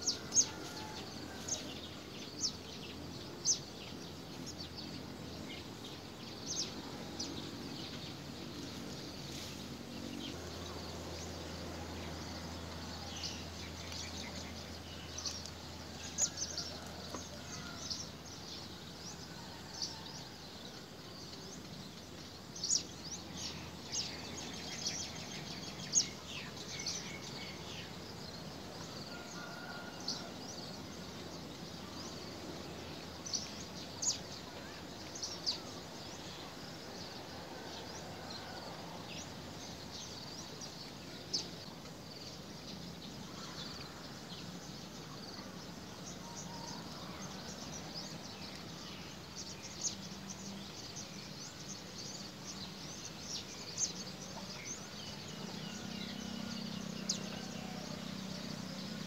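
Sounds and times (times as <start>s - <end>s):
outdoor background hiss: 0.0s - 59.0s.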